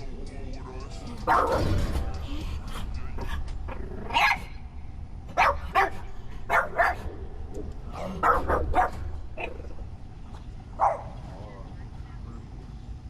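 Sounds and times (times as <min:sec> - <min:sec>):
dog barking: 0:01.2 - 0:01.8, 0:04.0 - 0:04.6, 0:05.3 - 0:07.1, 0:07.9 - 0:09.7, 0:10.8 - 0:11.2.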